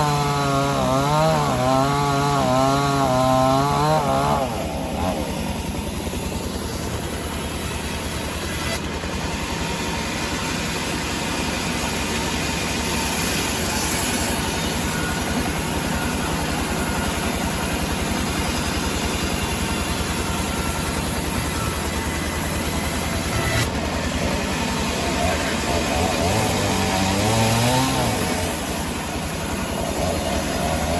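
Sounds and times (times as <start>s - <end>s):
sawmill machinery running: 0.0s - 30.9s.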